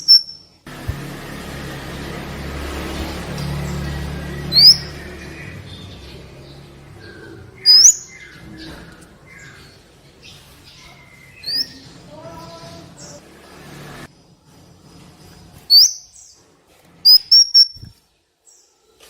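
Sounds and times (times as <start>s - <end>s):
sharp upward sweeping bird notes: 0.0s - 8.8s
soft bird twittering: 3.4s - 13.2s, 15.6s - 16.4s, 17.0s - 18.0s.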